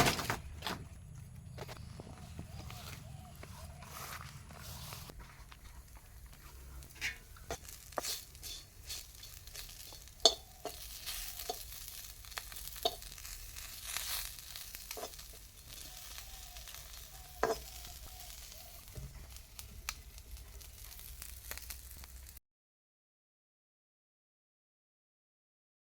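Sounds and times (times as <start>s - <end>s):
utensil scraping pan: 1.6s - 19.4s
fish sizzling in hot oil: 5.9s - 22.4s.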